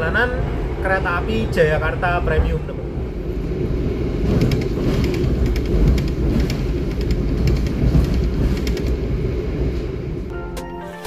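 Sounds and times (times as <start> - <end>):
train wheels rumbling on rails: 0.0 - 10.3.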